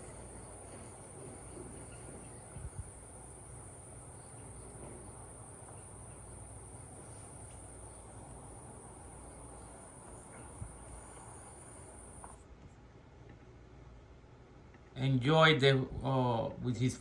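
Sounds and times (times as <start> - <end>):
crickets trilling: 0.0 - 12.4
faint low rumble: 0.0 - 17.0.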